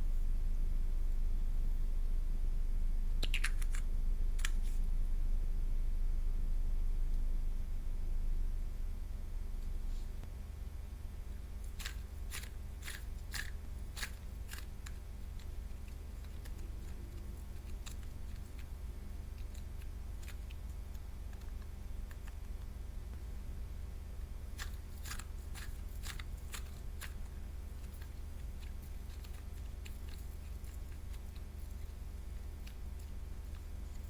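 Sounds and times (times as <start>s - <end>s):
steady low hum: 0.0s - 34.0s
sharp crisp clicks: 3.2s - 4.6s.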